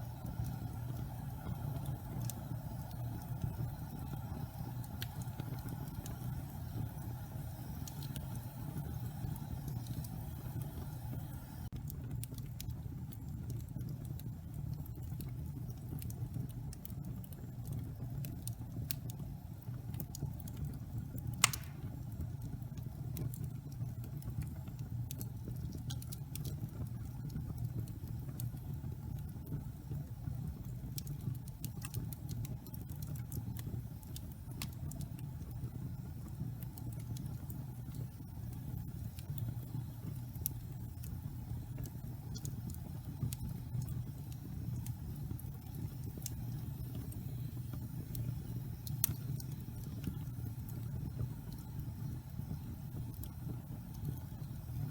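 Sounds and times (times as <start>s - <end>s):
fire rumbling and crackling: 0.0s - 54.9s
loud sharp pop of wood: 21.4s - 21.8s.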